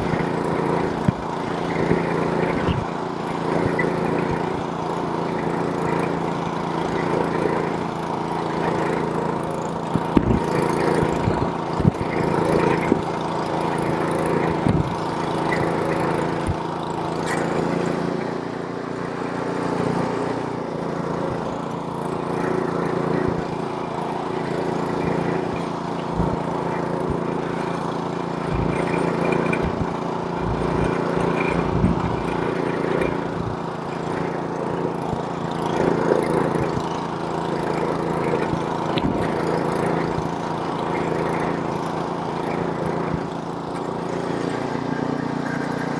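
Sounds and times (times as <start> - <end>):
snowblower engine running: 0.0 - 45.9
low thumps: 29.5 - 32.4.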